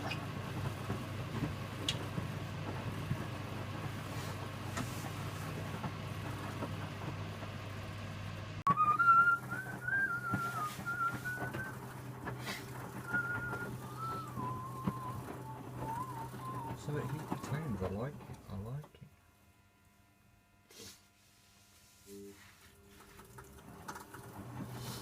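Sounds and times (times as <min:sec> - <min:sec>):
washing machine humming: 0:00.0 - 0:25.0
person whistling a tune: 0:08.7 - 0:11.8, 0:13.0 - 0:17.6.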